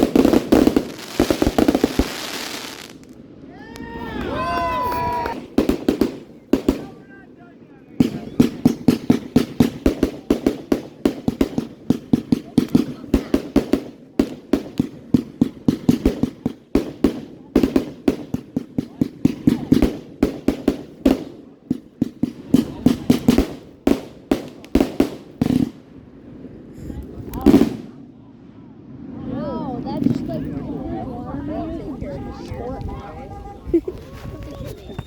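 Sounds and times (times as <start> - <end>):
fireworks bangs and pops: 0.0 - 3.2, 3.8 - 7.2, 7.9 - 25.9, 26.8 - 28.0.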